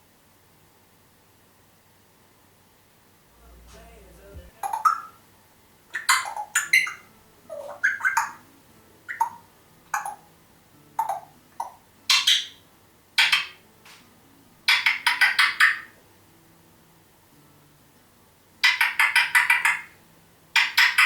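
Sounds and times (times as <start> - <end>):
parrot clicking whistling and chirping: 4.6 - 5.2, 5.9 - 8.4, 9.1 - 10.2, 11.0 - 12.6, 14.7 - 15.9, 18.6 - 19.9, 20.6 - 21.0.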